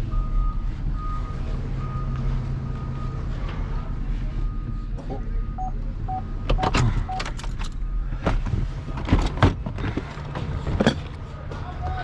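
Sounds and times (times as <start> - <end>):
reversing alarm beeps: 0.1 - 3.3, 4.4 - 8.0
scrap metal clanking: 8.9 - 11.2.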